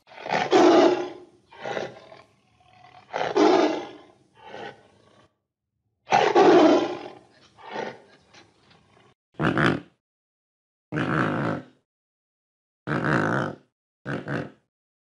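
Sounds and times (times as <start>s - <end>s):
tiger roaring: 0.0s - 5.4s, 6.1s - 9.8s.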